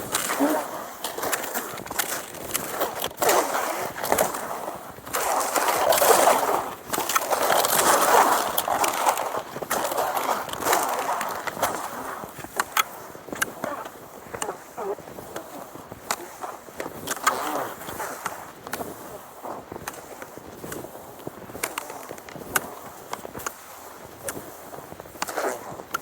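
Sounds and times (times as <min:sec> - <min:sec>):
skis scraping over snow: 0:00.0 - 0:26.0.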